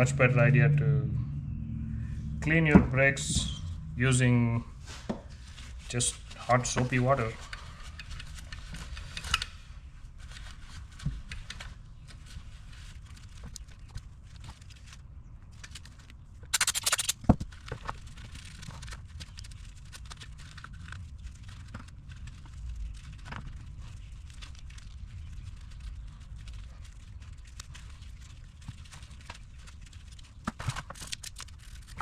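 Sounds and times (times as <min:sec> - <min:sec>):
aerosol can spraying: 0:16.6 - 0:17.2.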